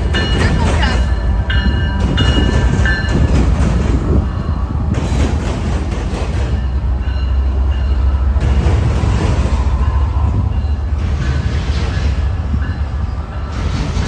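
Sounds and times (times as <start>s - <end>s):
train rumbling past: 0.0s - 14.0s
high squeal of train wheels: 6.3s - 14.0s.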